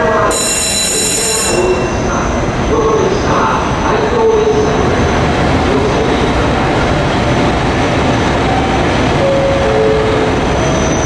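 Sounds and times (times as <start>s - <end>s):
electric train running noise: 0.0s - 3.2s, 5.1s - 11.0s
short train squeals: 0.3s - 2.0s, 9.6s - 11.0s.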